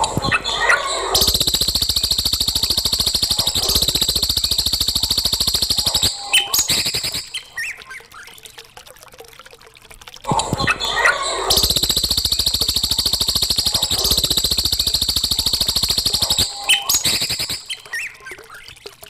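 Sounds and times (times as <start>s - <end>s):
bird calls: 0.0s - 8.1s, 10.4s - 18.5s
songbird rattling trill: 1.1s - 7.8s, 11.5s - 18.2s.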